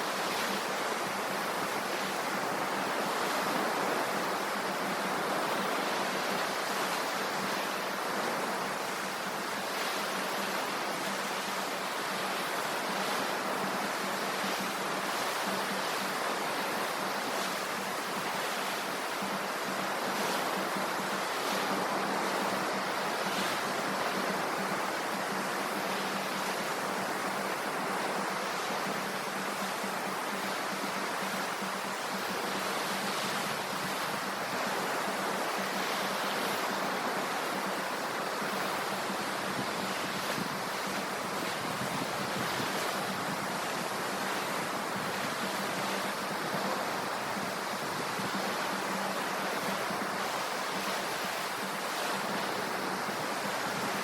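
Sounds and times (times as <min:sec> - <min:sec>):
sea surf washing on shore: 0:00.0 - 0:54.0.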